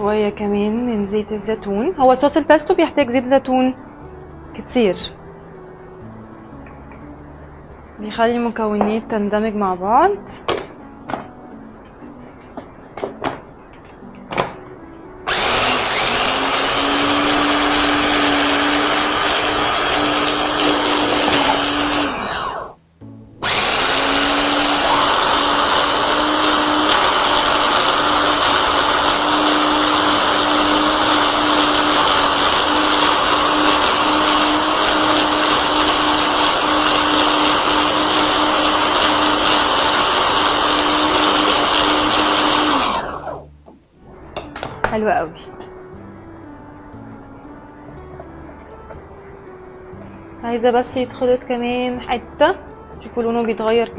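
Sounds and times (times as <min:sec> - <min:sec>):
blender motor running: 0:15.3 - 0:22.8, 0:23.4 - 0:43.5.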